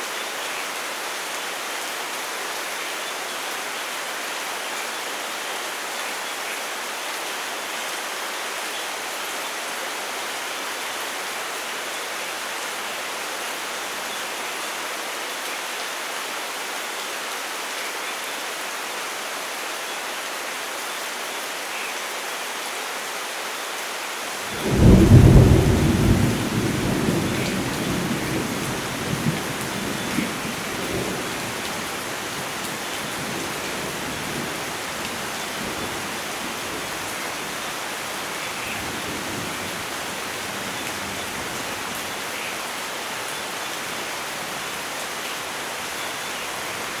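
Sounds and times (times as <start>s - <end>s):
heavy rain falling: 0.0s - 47.0s
loud thunder clap rumbling: 24.6s - 31.6s.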